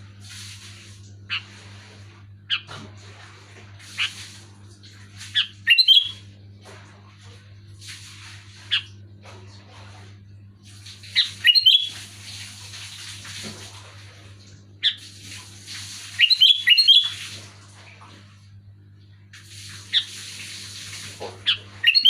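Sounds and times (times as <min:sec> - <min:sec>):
steady low hum: 0:00.0 - 0:16.2
bulbul whistled calls: 0:05.4 - 0:06.2, 0:11.2 - 0:12.0, 0:16.2 - 0:17.2.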